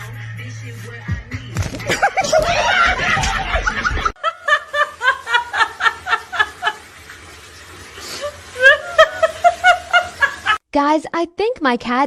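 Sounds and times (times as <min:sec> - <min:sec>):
high-pitched laughter: 0:01.9 - 0:06.8, 0:08.3 - 0:10.6.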